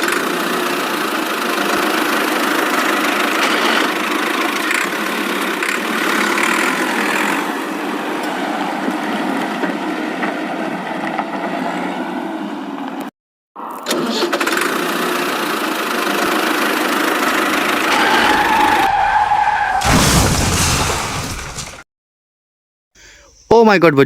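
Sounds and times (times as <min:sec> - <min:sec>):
vehicle engine running: 0:00.0 - 0:12.6, 0:14.5 - 0:19.4.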